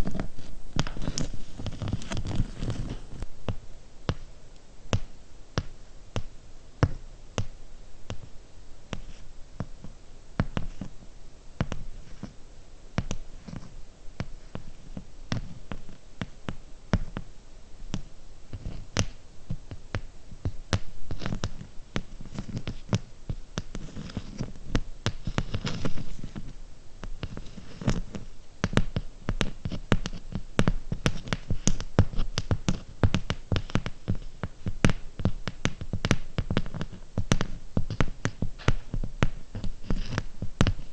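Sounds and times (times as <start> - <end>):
rubbing: 0.0 - 3.2, 17.9 - 40.9
fingernail tapping on hard objects: 27.2 - 40.8.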